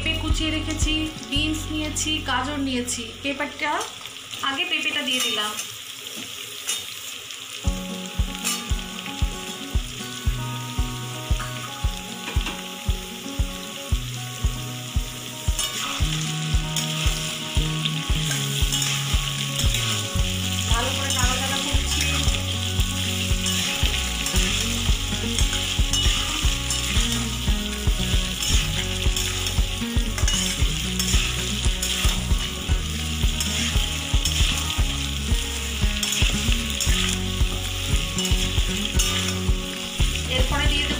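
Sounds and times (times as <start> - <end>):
vegetables sizzling in oil: 0.0 - 40.9
metal spatula stirring: 15.6 - 17.4, 18.2 - 39.9.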